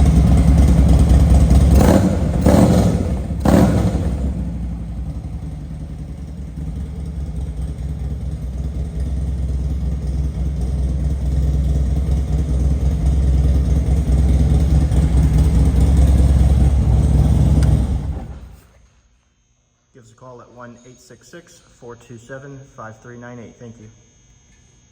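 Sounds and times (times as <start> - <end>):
motorcycle engine idling: 0.0 - 18.6.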